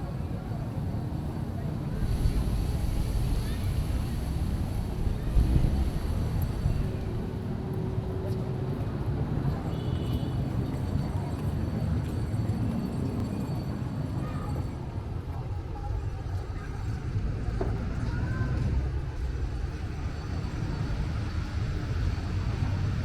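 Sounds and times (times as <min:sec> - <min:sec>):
wind buffeting microphone: 0:01.8 - 0:07.6.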